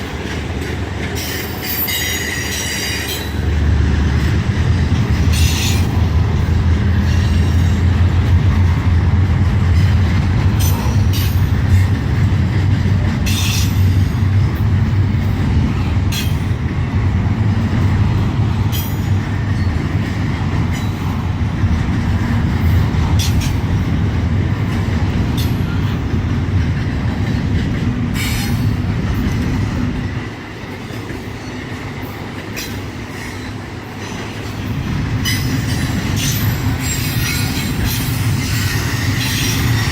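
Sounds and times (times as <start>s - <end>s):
freight train rumbling: 0.0s - 39.9s
train wheel squeals: 1.1s - 3.5s, 5.3s - 6.1s, 13.2s - 14.2s, 28.1s - 29.4s, 30.8s - 39.9s.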